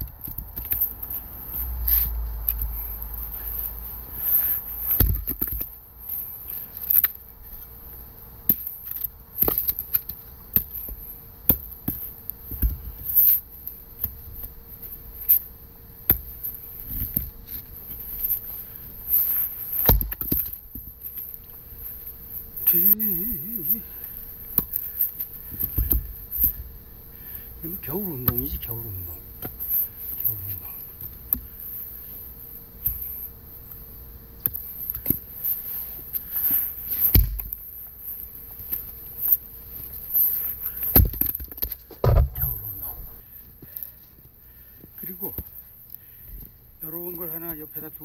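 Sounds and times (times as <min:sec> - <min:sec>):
axe chopping firewood: 0:41.9 - 0:43.2.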